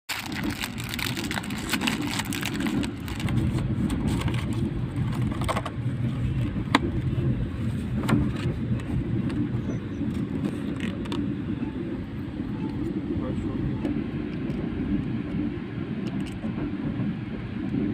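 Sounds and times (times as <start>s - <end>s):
train rumbling inside carriage: 0.1s - 17.9s.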